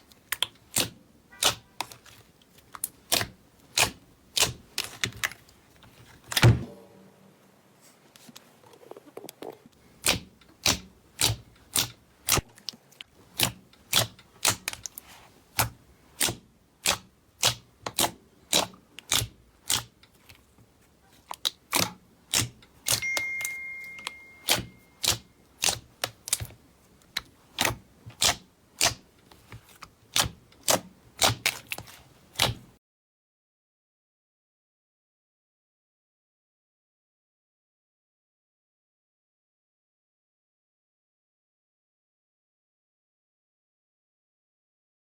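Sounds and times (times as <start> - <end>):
brief high steady tone: 22.9 - 24.9.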